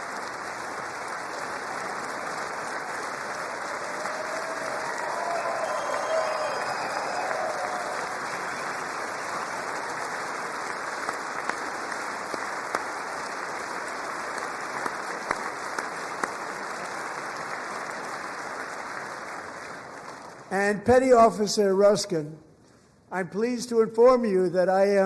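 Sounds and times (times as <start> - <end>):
audience applauding: 0.0 - 20.5.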